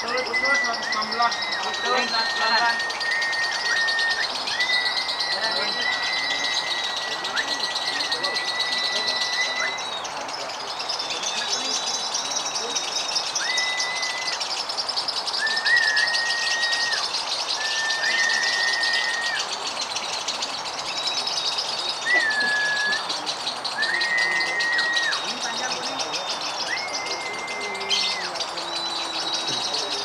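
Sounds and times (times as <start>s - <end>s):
bird whistle-like notes: 0.0s - 30.0s
birds chattering trill: 0.0s - 30.0s.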